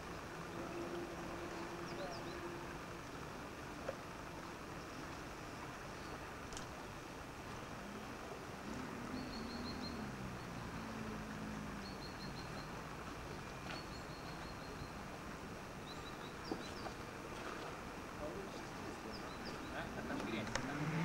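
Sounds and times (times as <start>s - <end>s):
faint low drone: 0.0s - 6.3s
steady background hiss: 0.0s - 21.0s.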